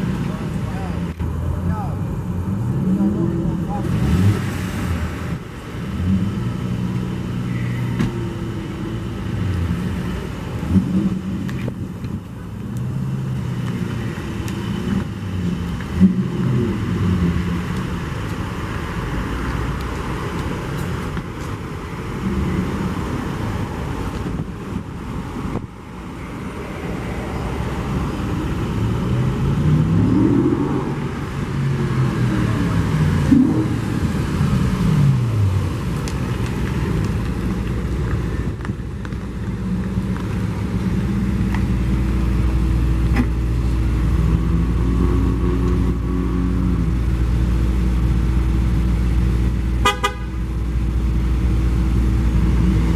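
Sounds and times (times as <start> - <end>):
engine revving up: 0.0 - 11.7, 26.8 - 35.9
car engines running at low revs: 0.0 - 52.9.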